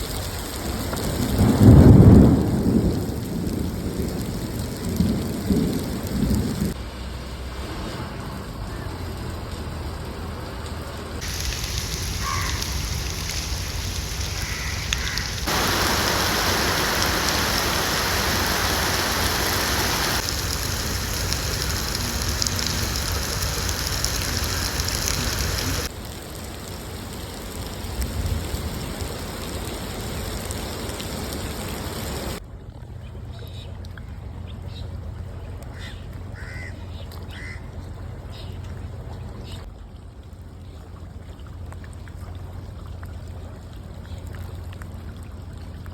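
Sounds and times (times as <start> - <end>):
heavy rain hissing: 0.0 - 6.8, 11.2 - 32.4
short bird calls: 11.3 - 20.2.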